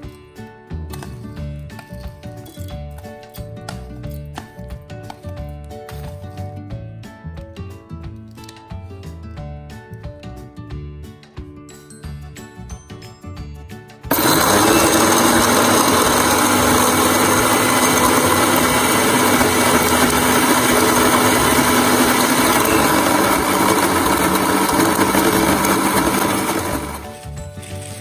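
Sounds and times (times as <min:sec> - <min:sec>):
mixer grinder motor whirring: 0:14.1 - 0:28.0.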